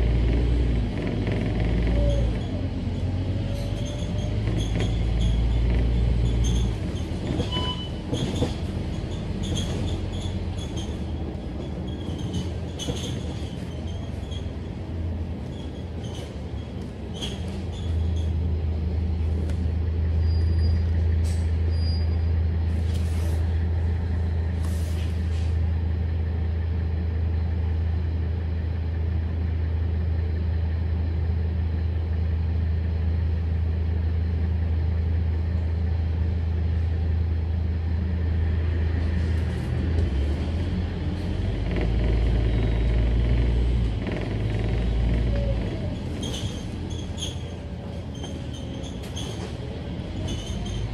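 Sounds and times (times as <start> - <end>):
bus diesel engine humming: 0.0 - 50.9
air brakes hissing: 24.6 - 25.6.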